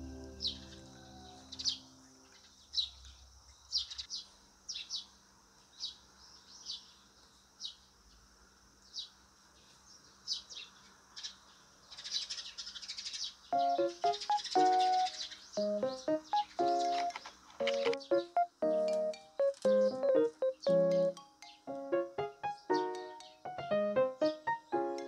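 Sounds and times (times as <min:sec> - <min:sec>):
soft background music: 0:00.0 - 0:02.2, 0:13.6 - 0:25.0
small birds chirping: 0:00.0 - 0:25.0.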